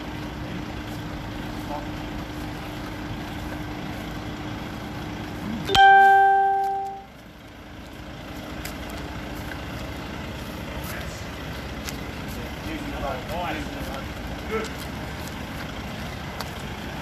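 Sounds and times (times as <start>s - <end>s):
lorry engine running: 0.0s - 17.0s
ding-like tone: 5.7s - 7.1s.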